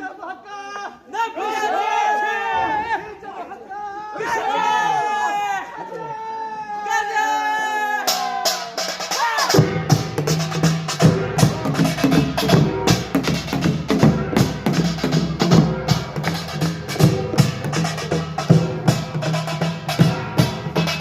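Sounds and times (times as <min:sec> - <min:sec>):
deep drum beats: 0:08.1 - 0:21.0.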